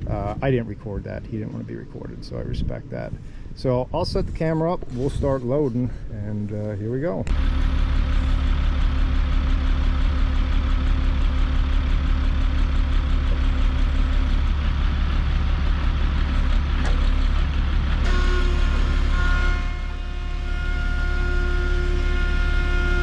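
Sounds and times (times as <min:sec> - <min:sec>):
diesel engine rumbling: 0:00.0 - 0:23.0.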